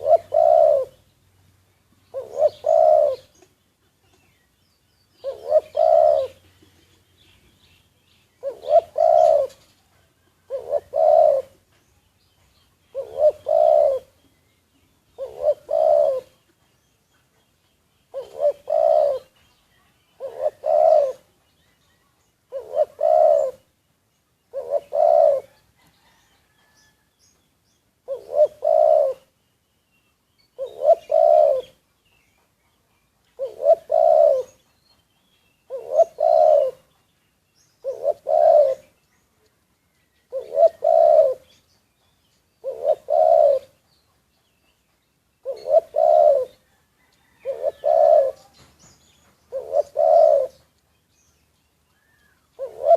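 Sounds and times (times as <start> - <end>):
dove cooing: 0.0 - 1.0, 2.1 - 3.5, 5.2 - 6.9, 8.4 - 11.7, 12.9 - 14.3, 15.1 - 16.6, 18.1 - 19.4, 20.1 - 21.5, 22.5 - 23.7, 24.5 - 26.8, 28.0 - 29.4, 30.6 - 31.8, 33.4 - 34.7, 35.7 - 37.0, 37.8 - 39.0, 40.3 - 41.6, 42.6 - 43.9, 45.4 - 50.7, 52.0 - 52.9.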